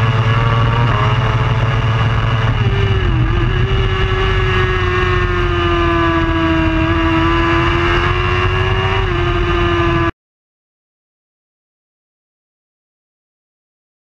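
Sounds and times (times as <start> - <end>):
motorcycle engine at high revs: 0.0 - 10.1.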